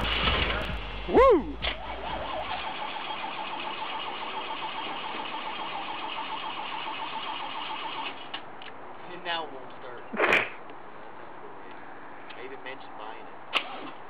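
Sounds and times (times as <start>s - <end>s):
car engine cranking on starter: 0.0s - 8.4s.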